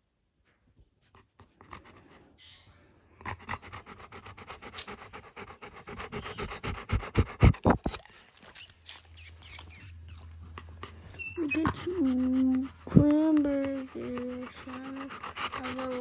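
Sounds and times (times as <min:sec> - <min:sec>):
dog panting fast: 0:01.1 - 0:02.4, 0:03.2 - 0:08.2, 0:10.4 - 0:16.0.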